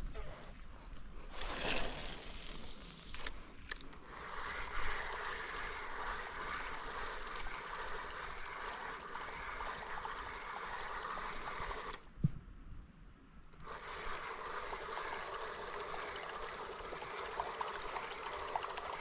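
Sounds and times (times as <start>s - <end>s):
water trickling and gurgling: 13.7s - 19.0s.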